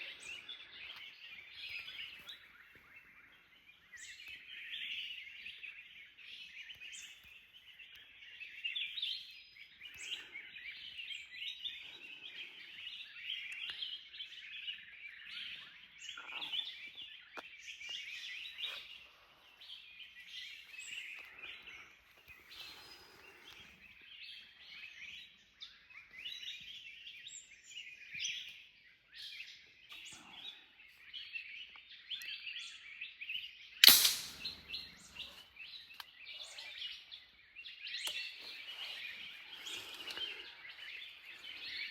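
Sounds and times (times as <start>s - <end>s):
forest birds chirping: 0.0s - 41.9s
sharp gunshot: 33.8s - 34.8s.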